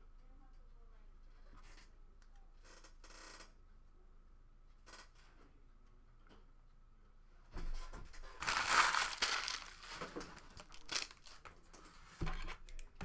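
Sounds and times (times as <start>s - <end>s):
plastic packaging tearing and crinkling: 8.3s - 11.5s.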